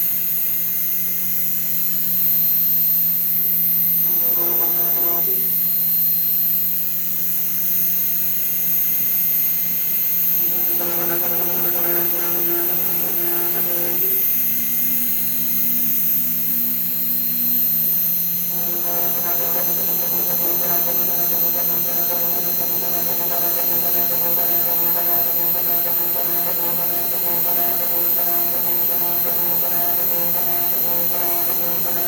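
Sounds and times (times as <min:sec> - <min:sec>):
router spindle hum and whine: 0:03.0 - 0:07.1, 0:09.1 - 0:32.0
pitched motor tones: 0:04.0 - 0:05.7, 0:10.4 - 0:14.6, 0:18.5 - 0:32.0.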